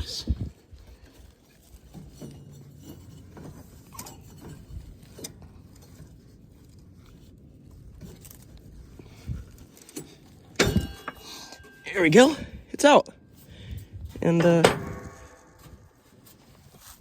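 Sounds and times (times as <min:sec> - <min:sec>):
metal parts clicking and rattling: 0:00.0 - 0:12.2.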